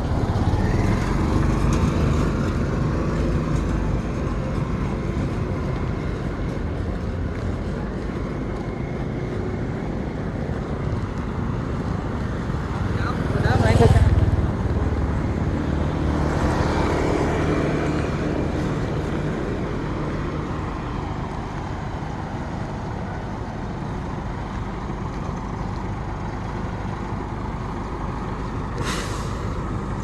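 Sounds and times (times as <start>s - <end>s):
traffic rumble: 0.0s - 30.0s
vehicle engine running: 0.0s - 30.0s
short hiss: 28.8s - 29.6s.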